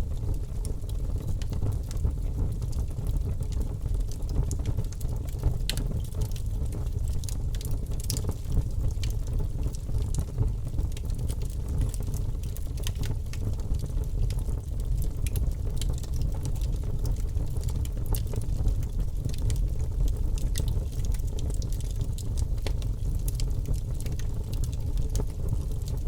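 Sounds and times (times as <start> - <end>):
fire crackling and popping: 0.0 - 26.0
fire rumbling: 0.0 - 26.0.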